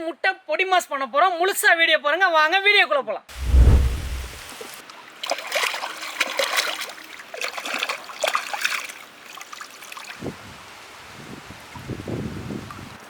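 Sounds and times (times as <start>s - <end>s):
water splashing and trickling: 4.3s - 10.3s.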